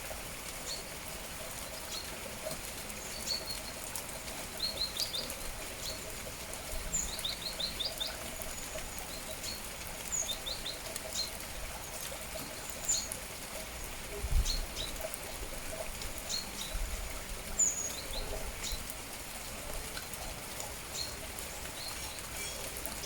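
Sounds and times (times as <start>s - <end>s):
rain falling: 0.0s - 23.0s
small birds chirping: 2.9s - 13.2s, 17.6s - 18.9s, 20.9s - 23.0s.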